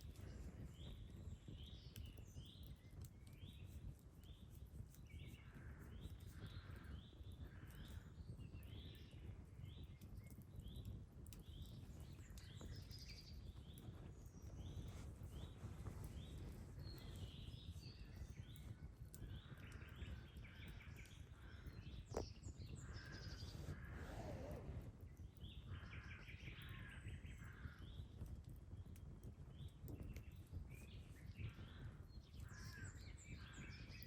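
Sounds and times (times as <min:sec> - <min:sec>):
campfire crackles: 0:00.0 - 0:34.0
birds chirping: 0:11.5 - 0:24.8.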